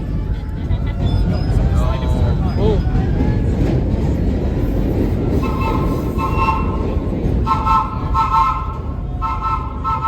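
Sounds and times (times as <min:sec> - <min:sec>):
subway train rumbling: 0:00.0 - 0:10.0
train horn blasts: 0:05.4 - 0:10.0.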